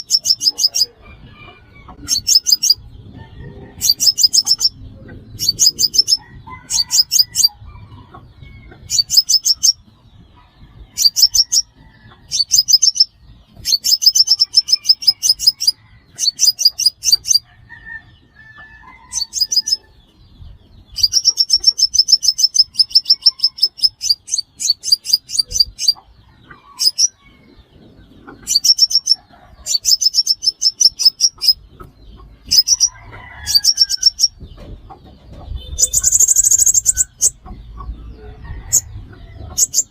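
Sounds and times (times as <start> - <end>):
bird ticking trills: 0.0 - 1.0, 3.8 - 7.6, 8.8 - 9.8, 12.3 - 17.5, 20.9 - 26.1, 28.4 - 34.4, 35.5 - 38.0.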